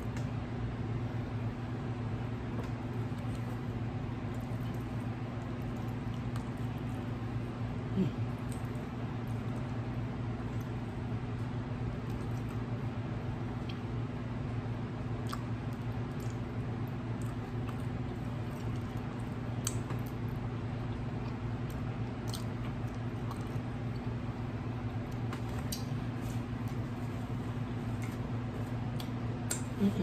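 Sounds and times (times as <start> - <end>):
steady low hum: 0.0 - 30.0
person chewing: 15.1 - 20.2, 20.8 - 24.2
wet mouth smacks: 19.6 - 20.2, 28.9 - 29.8.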